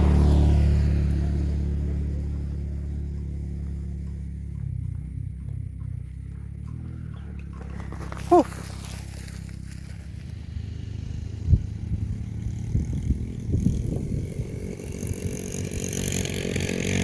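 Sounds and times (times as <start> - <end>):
tyre rumble on dirt trail: 0.0 - 11.0
mountain bike rattling over bumps: 0.0 - 17.0.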